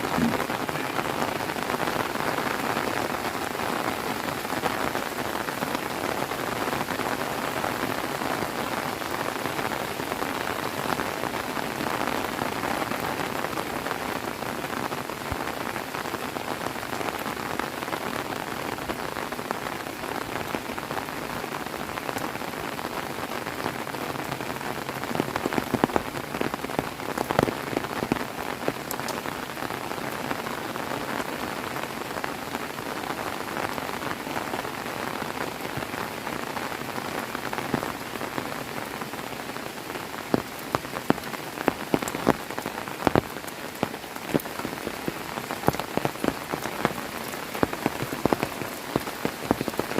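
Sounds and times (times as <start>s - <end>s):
sharp raindrop hits: 0.0s - 3.2s
heavy rain falling: 0.0s - 49.9s.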